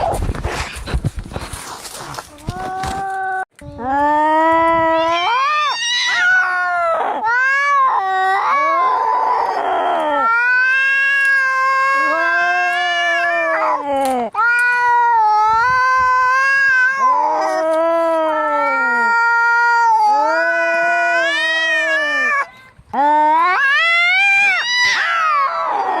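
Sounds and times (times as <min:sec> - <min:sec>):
cats yowling: 0:04.8 - 0:22.5, 0:23.3 - 0:26.0.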